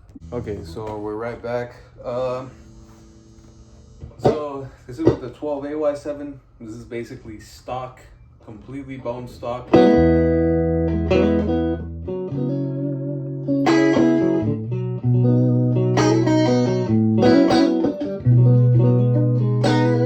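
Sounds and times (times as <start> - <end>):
electric guitar chords ringing: 9.7 - 20.0.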